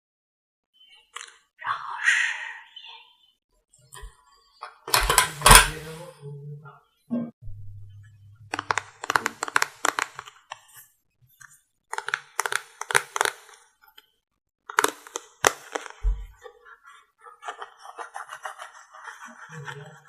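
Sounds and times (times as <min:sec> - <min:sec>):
makeup items crackling and tapping: 0:04.0 - 0:05.9, 0:08.4 - 0:16.8.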